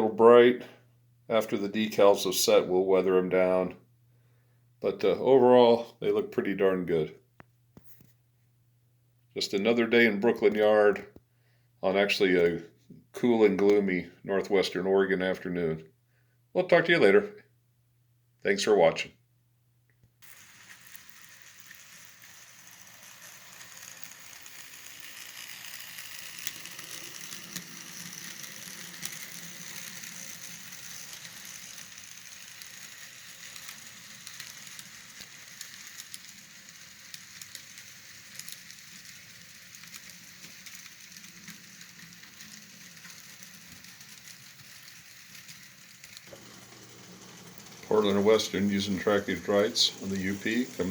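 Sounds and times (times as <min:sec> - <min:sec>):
model train motor whirring: 0:20.2 - 0:50.9
wheels clicking on rails: 0:20.3 - 0:50.9.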